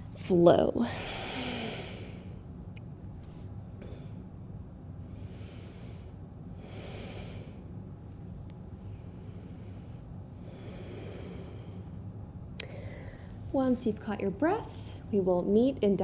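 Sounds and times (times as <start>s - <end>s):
low hum: 0.0s - 15.7s
person breathing deeply: 0.9s - 2.4s, 5.1s - 7.7s, 8.8s - 12.0s, 12.6s - 13.4s.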